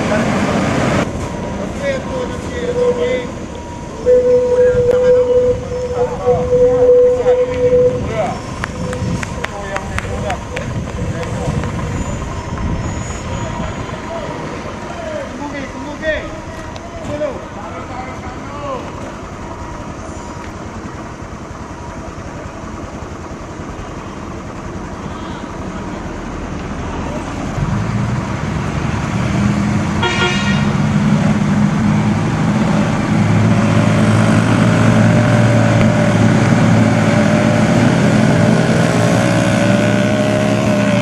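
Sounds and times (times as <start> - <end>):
heavy truck engine running: 0.0 - 41.0
truck horn toot: 4.0 - 9.5, 30.0 - 30.9.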